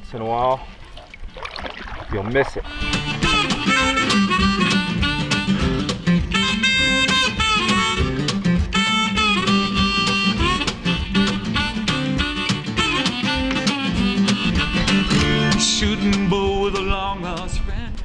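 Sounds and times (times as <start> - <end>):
acoustic guitar: 0.5 - 18.0
bluesy harmonica: 2.6 - 16.4.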